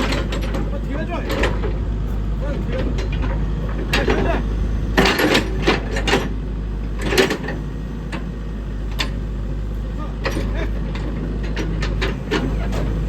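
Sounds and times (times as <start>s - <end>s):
short clanks: 0.0s - 8.3s, 10.2s - 13.0s
diesel engine droning: 0.0s - 13.0s
people talking: 0.4s - 1.7s, 2.3s - 3.1s, 3.8s - 4.5s, 9.9s - 10.8s.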